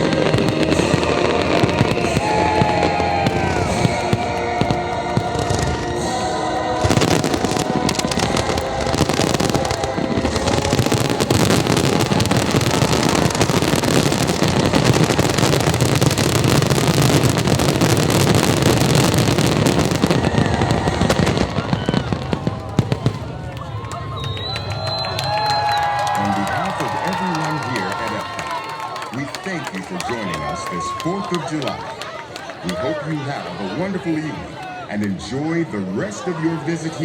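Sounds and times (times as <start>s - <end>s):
fireworks bangs and crackling: 0.0s - 34.2s.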